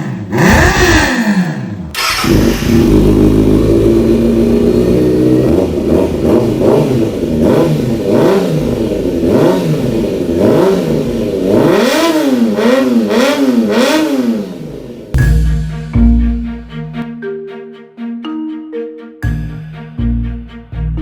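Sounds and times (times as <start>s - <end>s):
motorcycle engine revving: 0.0s - 16.4s.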